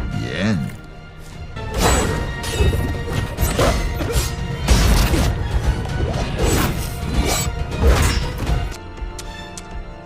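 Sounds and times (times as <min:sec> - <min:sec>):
dramatic orchestral music: 0:00.0 - 0:10.0.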